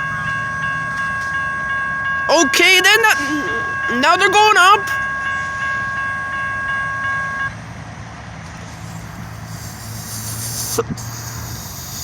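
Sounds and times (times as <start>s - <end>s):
hiss: 8.7s - 12.0s.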